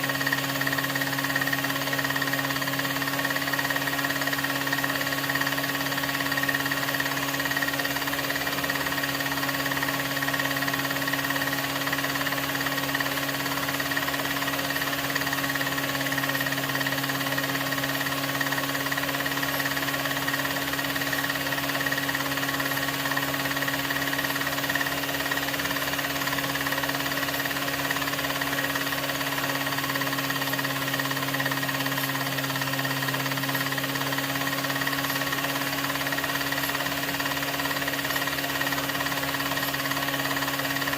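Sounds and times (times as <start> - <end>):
projector motor hum: 0.0 - 40.9.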